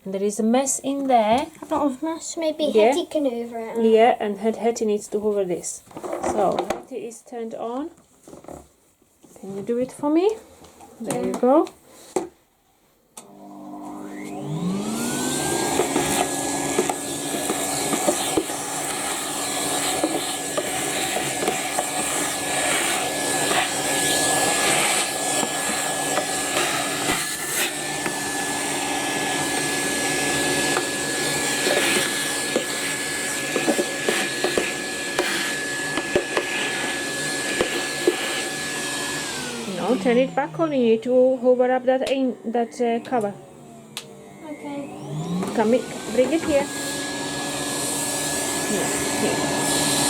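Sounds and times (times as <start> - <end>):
vacuum cleaner whine and suction: 13.2 - 50.0.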